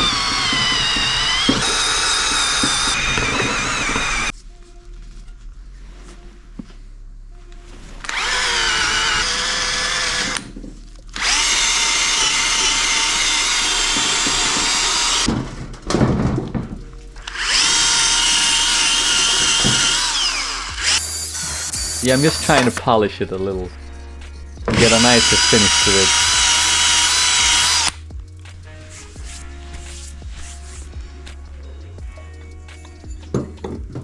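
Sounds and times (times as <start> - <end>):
electric drill polishing whine: 0.0 - 4.3, 8.1 - 10.4, 17.3 - 22.8, 25.2 - 27.9.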